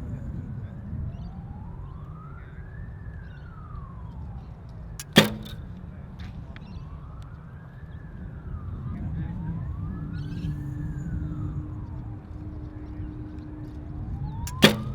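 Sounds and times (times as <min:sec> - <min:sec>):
bow string crack: 0:05.0 - 0:05.7, 0:14.5 - 0:14.9.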